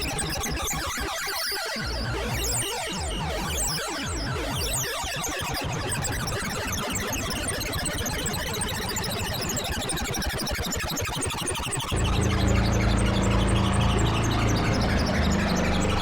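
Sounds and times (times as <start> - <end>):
low synthesizer drone: 11.9 - 16.0.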